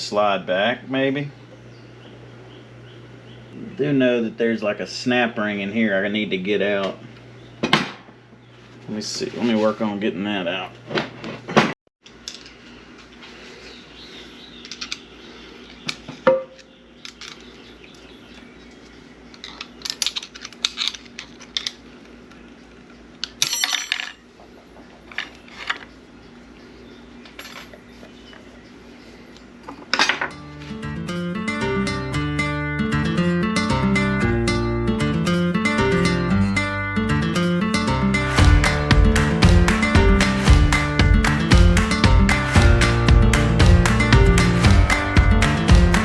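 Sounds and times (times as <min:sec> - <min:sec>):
hand tools clinking on metal: 0:23.4 - 0:24.2, 0:27.3 - 0:27.8
acoustic guitar music: 0:30.3 - 0:46.0.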